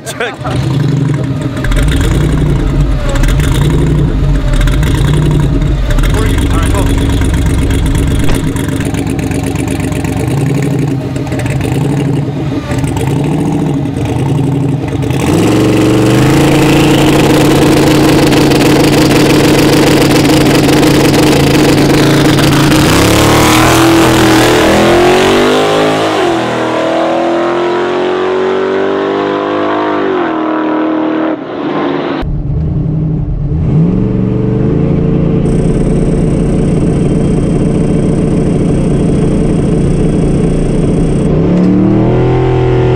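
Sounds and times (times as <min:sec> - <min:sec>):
engine idling and revving: 0:00.0 - 0:42.9
truck engine revving: 0:00.0 - 0:42.9
launch limiter popping: 0:00.5 - 0:15.4.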